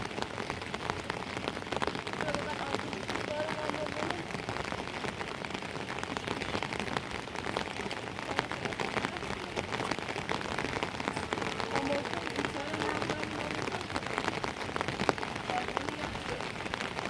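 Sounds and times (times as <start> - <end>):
raindrops striking close by: 0.0 - 17.0
steady rain: 0.0 - 17.0.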